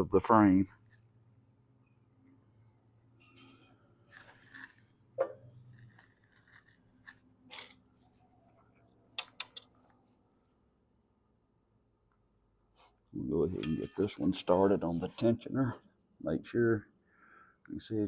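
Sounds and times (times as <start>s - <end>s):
metal hardware scraping and rattling: 3.2s - 4.7s, 13.5s - 14.6s
sharp metallic clicks: 9.2s - 9.7s.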